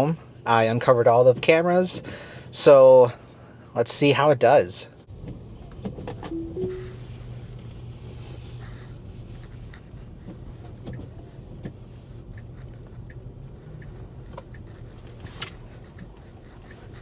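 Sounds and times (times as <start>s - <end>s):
short rising squeak: 15.2s - 15.6s.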